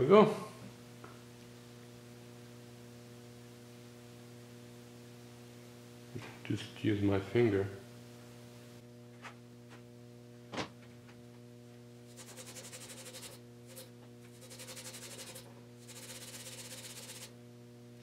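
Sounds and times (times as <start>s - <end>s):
electrical hum: 0.0s - 18.0s
fast rubbing of metal lapping: 12.1s - 17.3s.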